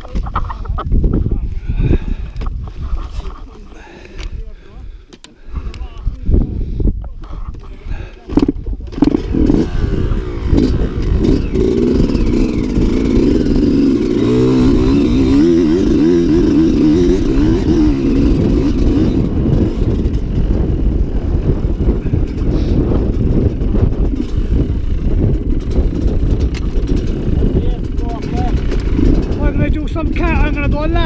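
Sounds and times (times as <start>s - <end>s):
steady low rumble: 7.9s - 30.8s
dirt bike engine revving: 8.3s - 30.9s.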